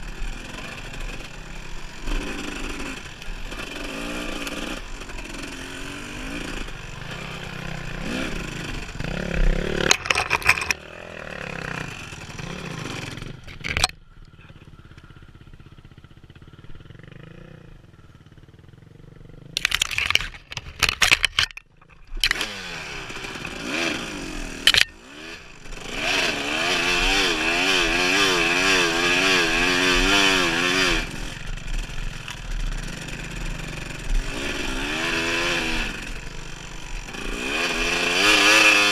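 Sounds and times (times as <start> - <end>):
dirt bike engine revving: 0.0 - 14.0, 14.7 - 38.9
sharp knocks and clatter: 9.8 - 10.8, 19.6 - 22.4.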